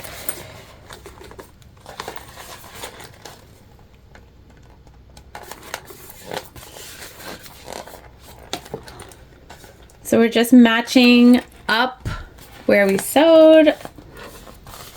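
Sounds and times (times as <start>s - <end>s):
plastic bag rustling: 0.0s - 3.9s.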